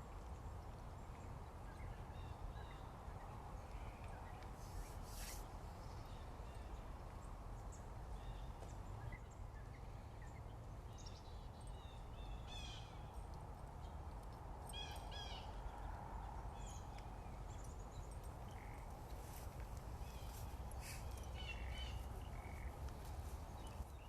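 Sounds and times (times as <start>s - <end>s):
wild birds chirping and trilling: 13.9s - 24.0s.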